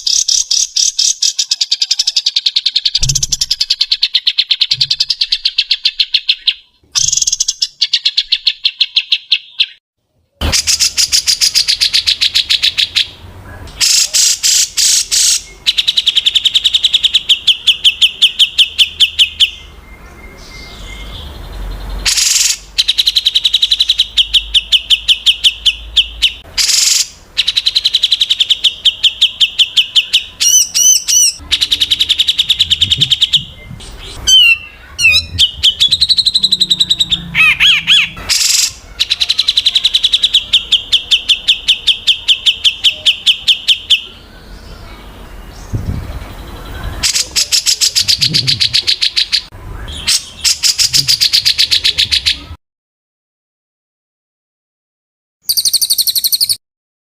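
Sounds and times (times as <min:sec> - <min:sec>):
warbling whistled bird phrases: 0:00.0 - 0:09.8, 0:22.1 - 0:45.0, 0:45.6 - 0:52.6, 0:55.4 - 0:56.6.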